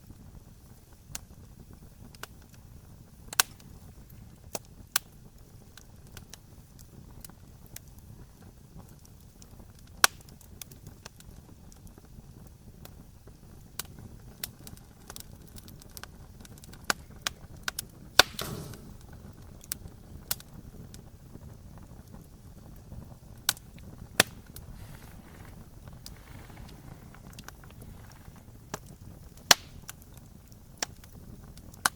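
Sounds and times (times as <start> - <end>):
campfire crackling and popping: 0.0 - 31.9
low rumble of flames: 0.0 - 31.9
short hiss: 18.2 - 19.2.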